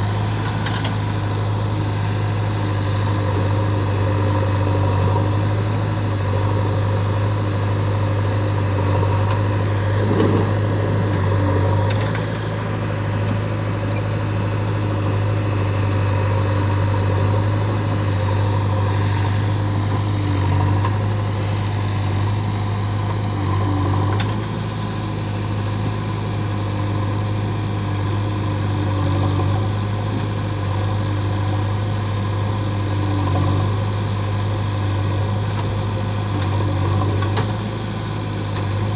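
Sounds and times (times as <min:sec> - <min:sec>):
diesel engine idling: 0:00.0 - 0:27.8.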